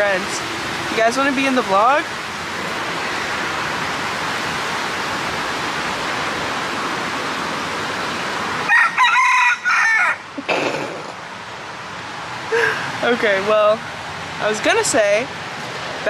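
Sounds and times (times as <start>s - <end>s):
waterfall rushing: 0.0s - 10.3s
rooster crowing: 8.6s - 10.3s.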